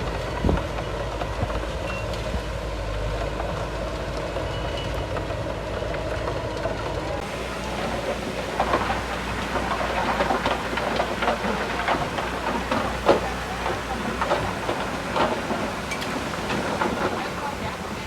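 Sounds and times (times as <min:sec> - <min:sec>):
bulldozer diesel engine running: 0:00.0 - 0:18.0
irregular clanks and knocks: 0:07.2 - 0:18.0.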